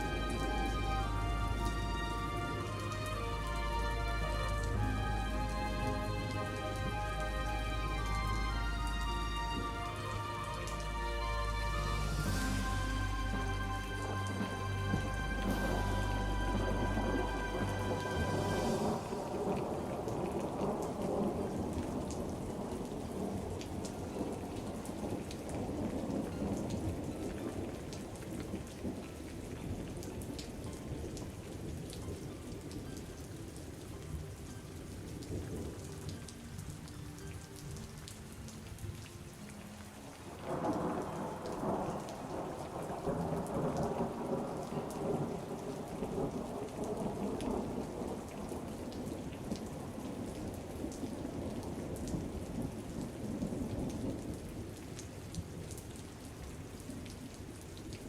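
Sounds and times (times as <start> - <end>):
steady rain: 0.0 - 58.0
rolling thunder: 12.2 - 27.8.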